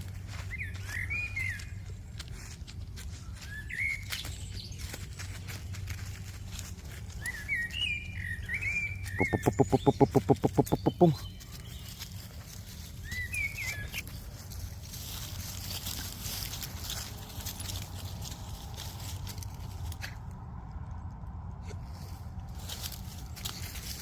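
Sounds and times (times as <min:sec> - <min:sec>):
birds chirping: 0:07.2 - 0:12.2
rapid low pulses: 0:09.2 - 0:11.2.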